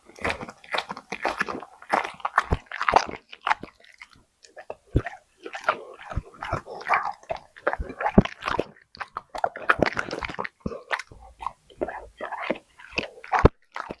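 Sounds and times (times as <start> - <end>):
dog chewing food: 0.0 - 14.0.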